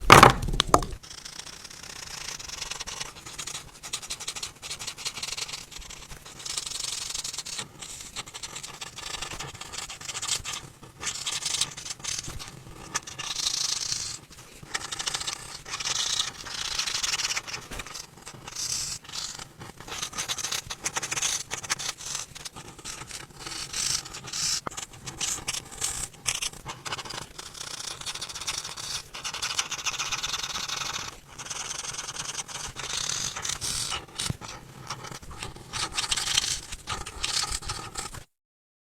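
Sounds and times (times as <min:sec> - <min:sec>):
brief thump: 0:00.0 - 0:01.0
coloring tool scratching paper: 0:00.7 - 0:38.3.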